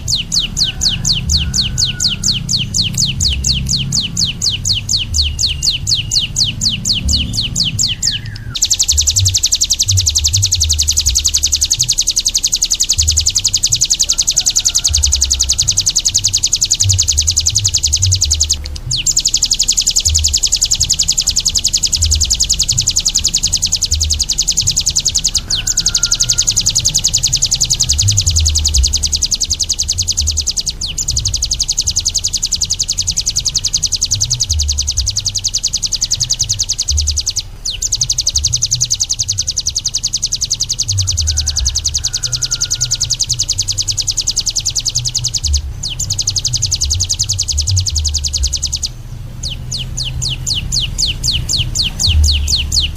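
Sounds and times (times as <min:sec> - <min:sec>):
low thumps: 0:00.0 - 0:14.0, 0:26.2 - 0:39.8, 0:43.6 - 0:52.9
songbird high trill: 0:00.0 - 0:52.9.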